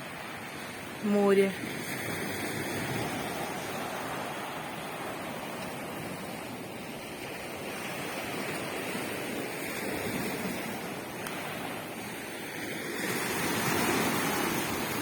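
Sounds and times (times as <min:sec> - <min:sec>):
sea waves breaking on shore: 0:00.0 - 0:15.0.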